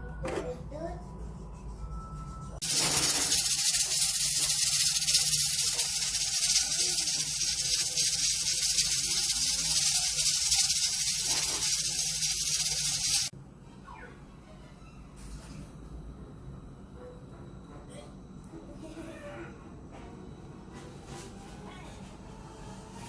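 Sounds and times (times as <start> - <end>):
high-pitched cooking hiss: 2.6 - 13.3.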